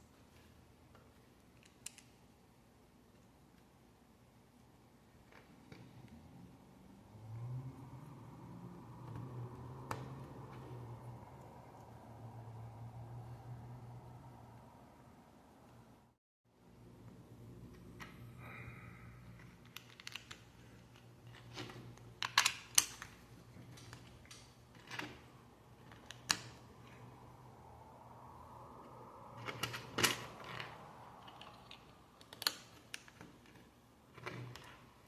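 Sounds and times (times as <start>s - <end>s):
plastic pieces clicking: 19.4s - 25.2s.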